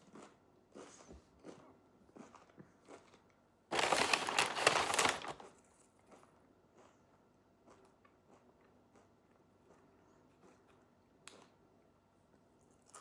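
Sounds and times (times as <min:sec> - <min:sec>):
food wrapper crinkling: 0:03.7 - 0:05.6.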